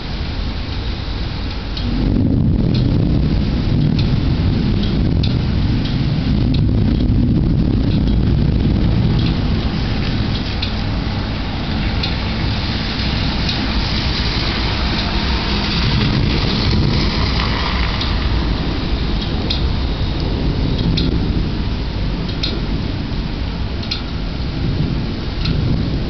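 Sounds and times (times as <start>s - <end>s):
deep thunder rumble: 0.0s - 26.0s
heavy rain: 0.0s - 26.0s
faint drip-like ticks: 0.7s - 1.9s, 2.7s - 3.0s, 3.8s - 4.2s, 4.8s - 7.2s, 7.8s - 8.4s, 9.2s - 10.9s, 11.7s - 13.7s, 14.9s - 16.2s, 17.4s - 18.3s, 19.1s - 21.2s, 22.2s - 22.7s, 23.7s - 24.3s, 25.4s - 25.7s.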